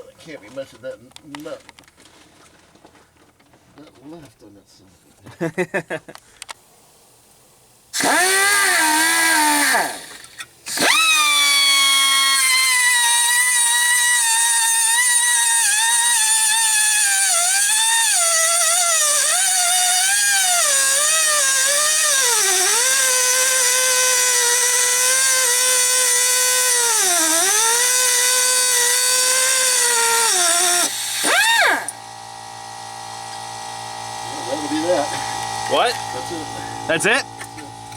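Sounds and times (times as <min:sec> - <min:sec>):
pneumatic cutting tool whining: 0:07.9 - 0:37.9.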